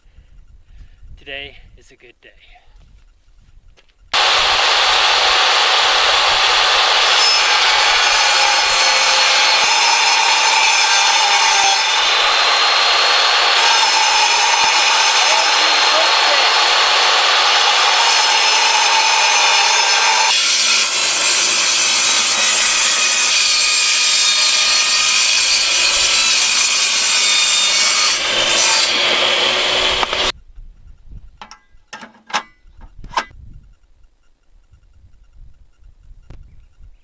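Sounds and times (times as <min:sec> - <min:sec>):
table saw cutting wood: 0:04.2 - 0:30.3.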